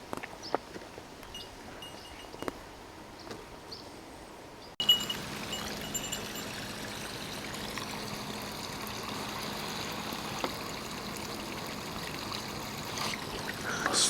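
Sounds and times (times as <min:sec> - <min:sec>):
stream water rushing: 0:04.8 - 0:14.0.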